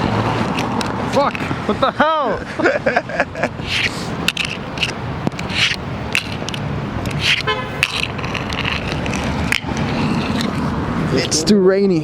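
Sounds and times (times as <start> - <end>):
traffic rumble: 0.0 - 12.0
sharp clicks and taps: 3.7 - 10.8
car horn toot: 7.4 - 7.8.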